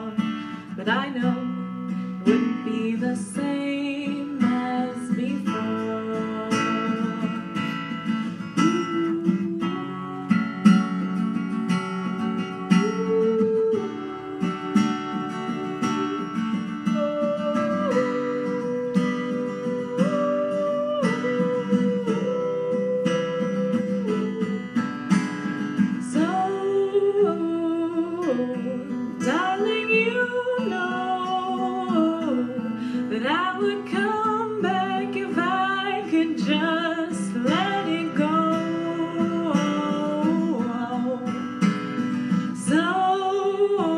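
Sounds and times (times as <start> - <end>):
sliding held melody line: 6.6 - 25.4.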